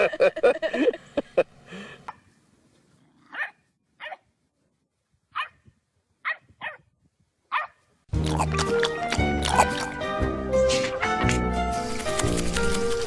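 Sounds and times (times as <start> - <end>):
dog barking: 3.3 - 4.3, 5.3 - 5.6, 6.2 - 6.9, 7.5 - 7.8.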